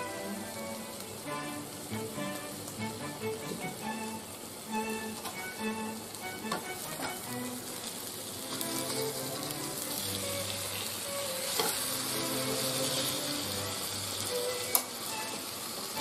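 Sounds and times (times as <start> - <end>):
chicken sizzling in a pan: 0.0 - 16.0
spoon tapping and scraping a pan: 11.5 - 11.8.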